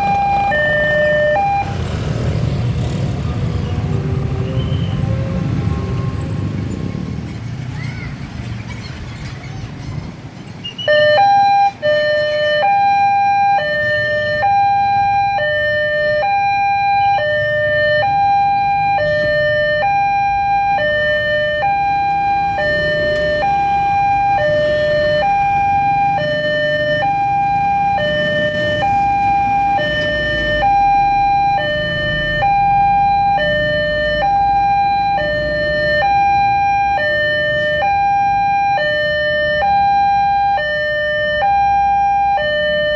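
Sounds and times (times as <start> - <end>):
level crossing two-tone alarm: 0.0 - 1.8, 10.9 - 42.9
low traffic rumble: 0.0 - 42.9.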